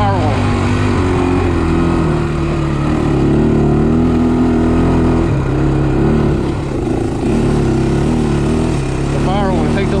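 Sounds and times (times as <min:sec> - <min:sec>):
atv engine running: 0:00.0 - 0:10.0.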